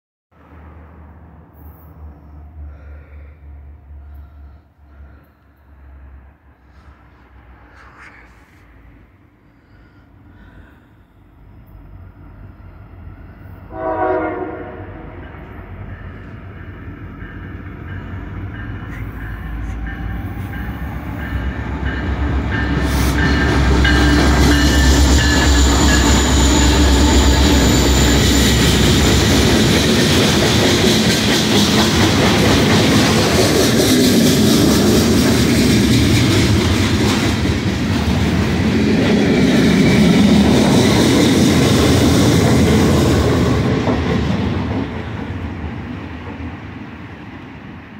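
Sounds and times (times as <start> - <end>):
train horn: 13.7 - 15.5
train wheels clattering on rails: 15.3 - 46.7.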